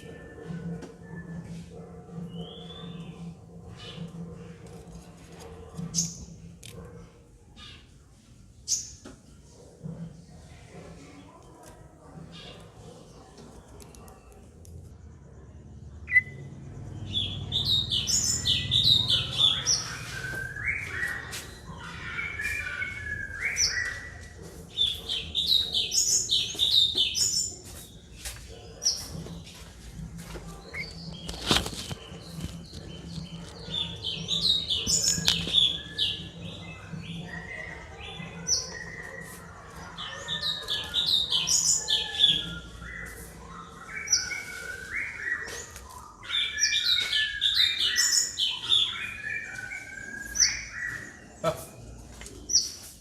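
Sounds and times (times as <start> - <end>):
bird singing whistles and chirps: 16.1 - 16.4, 17.2 - 27.5, 40.1 - 51.2.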